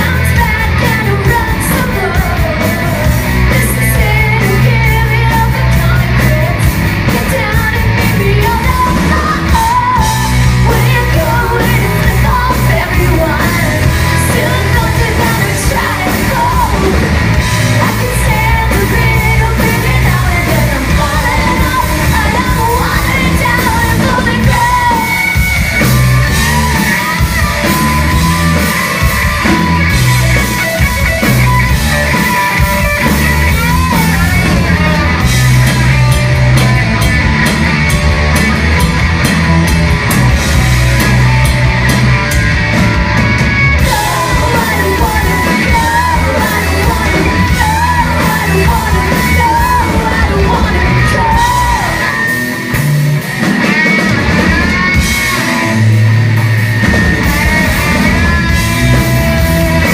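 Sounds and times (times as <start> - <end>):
woman singing: 0.0 - 27.3, 43.8 - 52.3
bass guitar: 0.0 - 59.9
drum kit: 0.0 - 59.9
electric guitars: 0.0 - 59.9.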